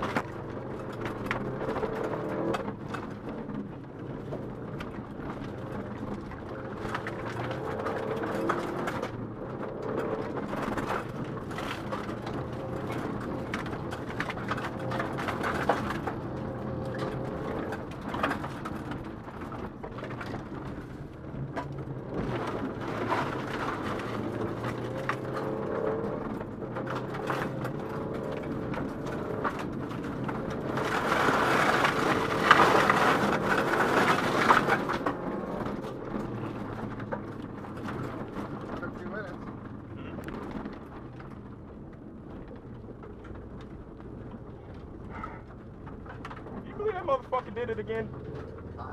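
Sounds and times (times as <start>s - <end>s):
rally car engine revving: 0.0s - 48.9s
rush of gravel noise: 22.1s - 37.2s.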